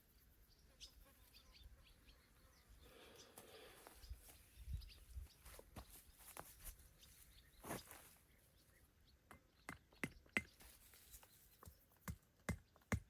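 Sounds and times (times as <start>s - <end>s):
soft rustle: 3.7s - 8.3s.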